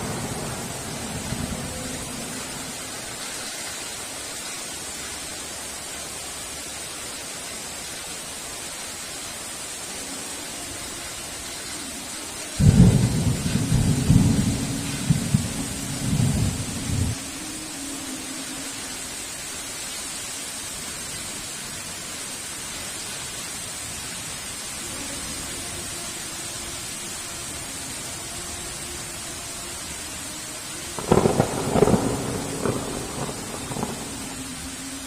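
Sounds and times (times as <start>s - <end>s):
thunder rumbling: 0.0s - 3.4s, 12.6s - 17.2s, 30.6s - 35.0s
heavy rain hiss: 0.0s - 35.0s.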